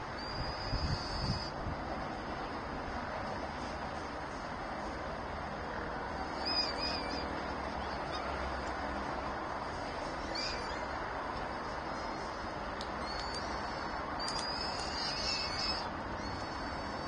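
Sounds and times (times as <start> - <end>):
high-pitched bird calls: 0.1 - 1.6, 6.2 - 8.6, 10.0 - 11.0, 13.0 - 17.0.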